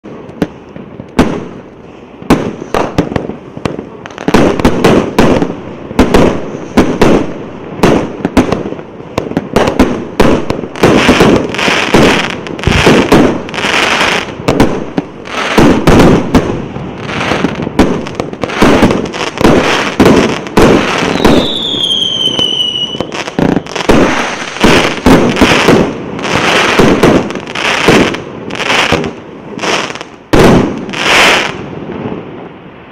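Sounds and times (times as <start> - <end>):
fireworks launching and banging: 0.0 - 32.9
falling firework whistle: 19.5 - 28.0.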